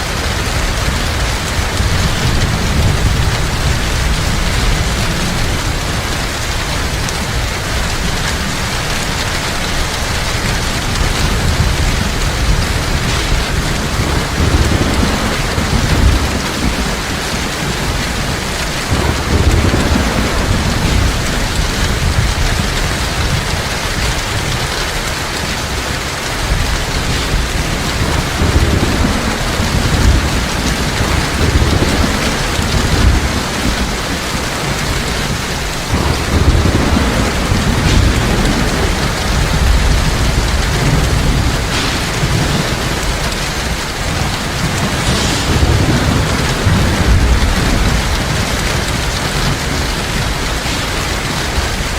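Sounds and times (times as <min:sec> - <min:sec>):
distant thunder rolling: 0:00.0 - 0:51.9
heavy rain: 0:00.0 - 0:51.9.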